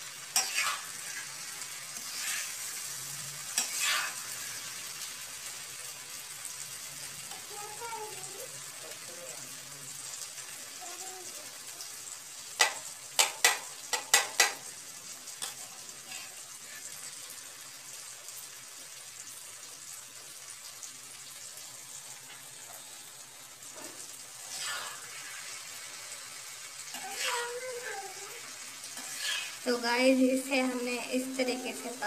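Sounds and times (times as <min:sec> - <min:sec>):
vegetables sizzling in oil: 0:00.0 - 0:32.0
spatula scraping vegetables: 0:00.3 - 0:04.9, 0:15.4 - 0:17.2, 0:23.6 - 0:29.8
spatula clacking against pan: 0:12.6 - 0:14.7.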